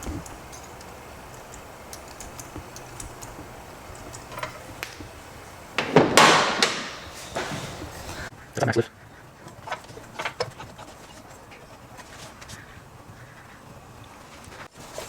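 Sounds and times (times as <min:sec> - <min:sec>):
small metal parts clicking: 0:00.0 - 0:05.6
loud metallic clatter: 0:02.1 - 0:08.3.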